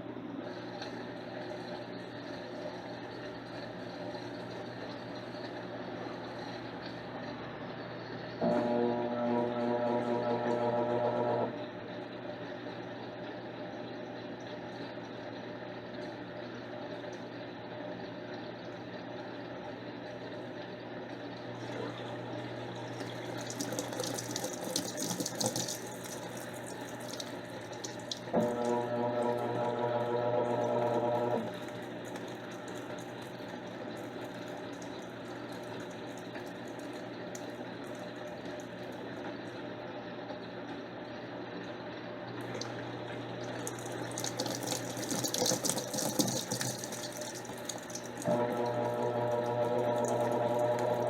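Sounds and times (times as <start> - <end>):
motor whine: 0.0 - 12.6, 28.2 - 32.9, 48.2 - 51.0
steady hum: 0.0 - 15.0, 15.8 - 51.0
water running into washing machine: 0.0 - 51.0.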